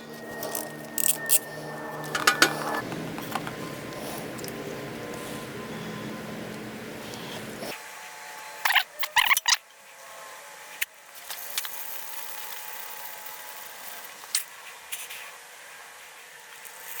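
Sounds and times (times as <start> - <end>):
hand tools clicking and knocking: 2.1 - 3.7.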